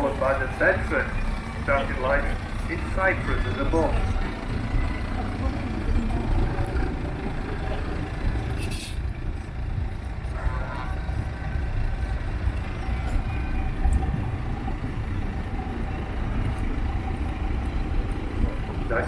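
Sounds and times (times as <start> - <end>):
vehicle engine rumbling past: 0.0 - 19.0.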